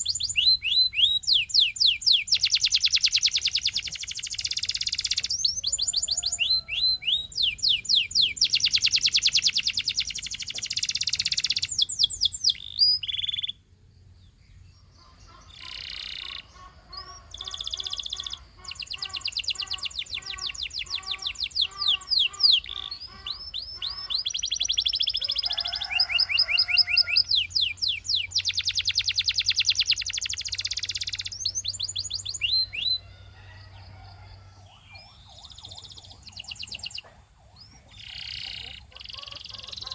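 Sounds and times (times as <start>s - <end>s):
canary singing: 0.0s - 13.7s, 14.3s - 39.9s.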